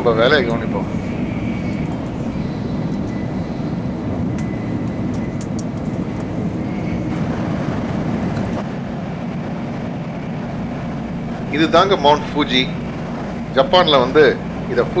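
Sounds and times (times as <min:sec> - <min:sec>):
train running noise in cabin: 0:00.0 - 0:15.0
faint ticks: 0:01.3 - 0:07.2.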